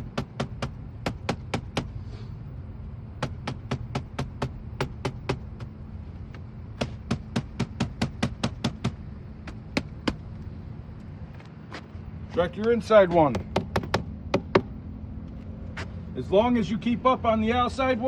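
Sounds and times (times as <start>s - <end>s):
air filter banged sharp knocks: 0.0s - 2.0s, 3.2s - 5.8s, 6.4s - 10.3s, 13.2s - 14.7s.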